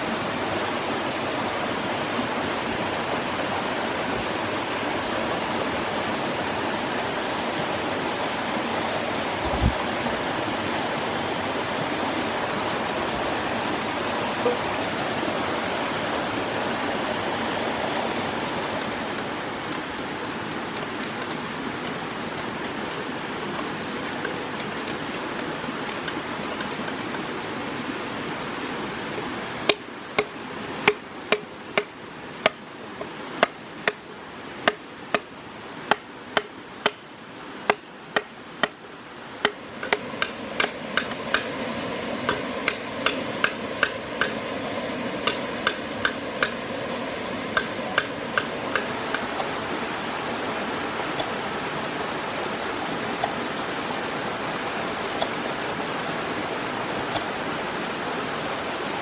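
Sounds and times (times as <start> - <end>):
steady rushing noise: 0.0 - 59.0
sharp knocks: 37.7 - 38.8, 39.4 - 41.6, 42.3 - 44.5, 45.2 - 46.6, 47.6 - 49.3.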